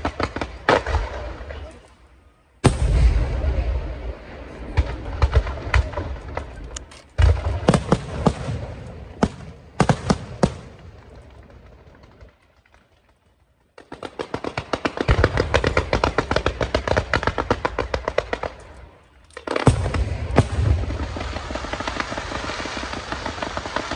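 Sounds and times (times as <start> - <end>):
firework bangs: 0.0 - 1.5, 2.6 - 12.4, 19.4 - 23.9
firework crackle: 19.3 - 23.9.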